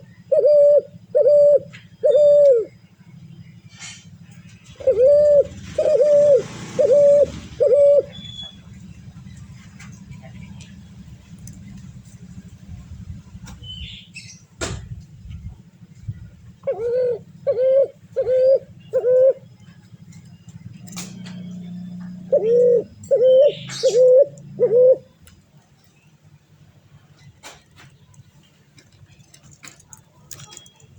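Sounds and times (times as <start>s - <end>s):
bird calling: 0.0s - 11.8s, 16.6s - 26.2s.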